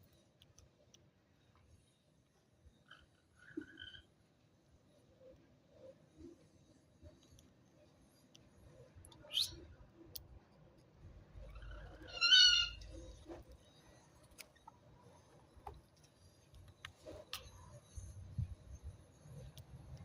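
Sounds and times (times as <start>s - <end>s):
budgerigar chirps and calls: 11.6s - 12.8s.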